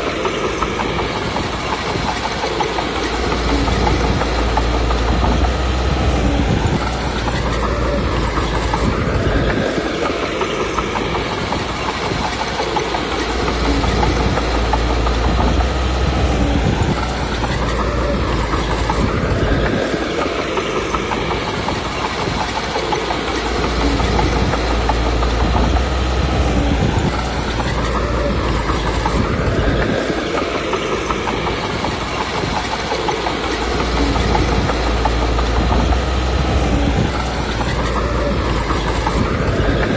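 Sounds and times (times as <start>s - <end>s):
bulldozer diesel engine under load: 0.0s - 39.9s.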